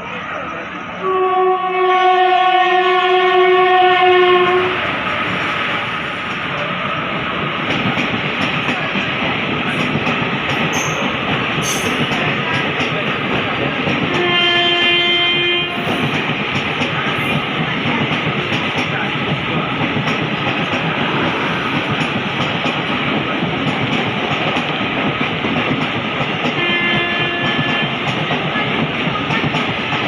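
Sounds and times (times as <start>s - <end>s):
train horn: 1.0s - 4.8s, 14.1s - 16.2s, 26.5s - 28.0s.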